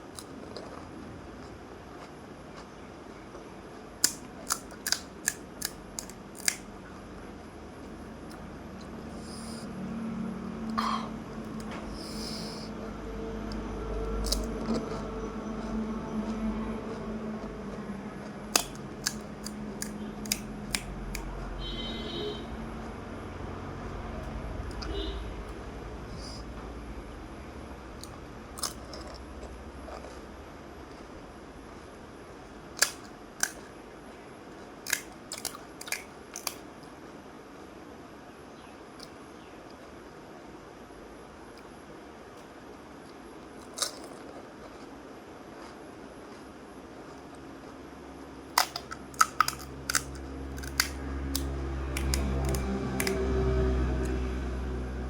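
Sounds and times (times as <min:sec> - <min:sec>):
crunching and slurping: 0:00.0 - 0:10.0, 0:10.7 - 0:21.4, 0:27.9 - 0:31.5, 0:32.4 - 0:37.0, 0:42.4 - 0:54.4
steady low hum: 0:00.0 - 0:55.0.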